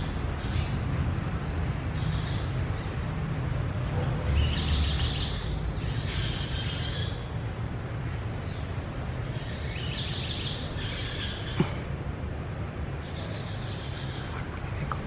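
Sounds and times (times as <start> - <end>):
birds chirping: 8.3 - 15.0
steady low rumble: 11.6 - 15.0.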